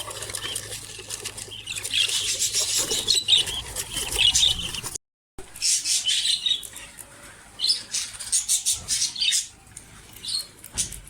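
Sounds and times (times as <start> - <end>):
budgerigars chirping: 1.5 - 4.9, 7.6 - 9.5.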